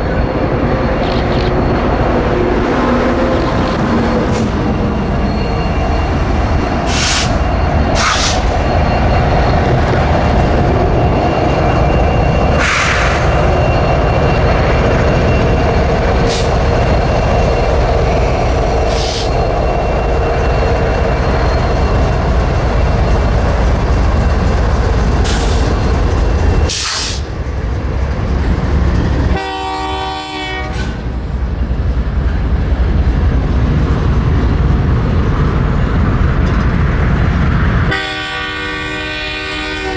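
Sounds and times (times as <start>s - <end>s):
freight train rumbling past: 0.0s - 39.9s
train horn: 29.3s - 31.1s, 37.9s - 39.9s.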